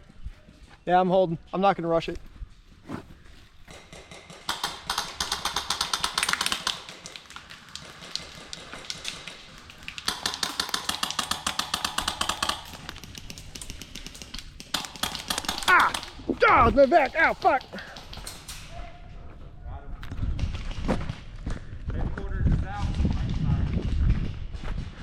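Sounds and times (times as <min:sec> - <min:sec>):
airsoft gun full-auto bursts: 0:03.8 - 0:07.1, 0:10.1 - 0:12.8.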